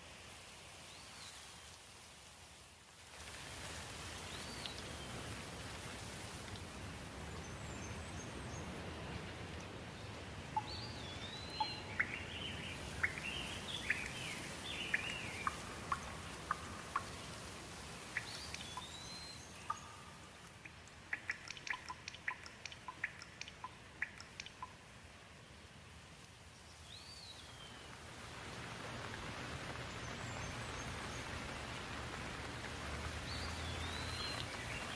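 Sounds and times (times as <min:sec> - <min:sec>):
hiss of water noise: 0:00.0 - 0:34.9
bird singing: 0:10.6 - 0:17.1, 0:18.2 - 0:20.5, 0:33.2 - 0:34.9
quick sharp ticks: 0:20.4 - 0:24.8.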